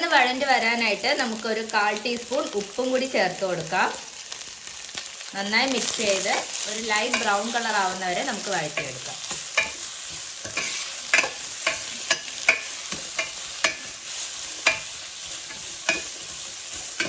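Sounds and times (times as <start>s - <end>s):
onions sizzling in oil: 0.0s - 17.0s
utensil scraping and knocking pan: 8.8s - 14.0s, 14.6s - 17.0s.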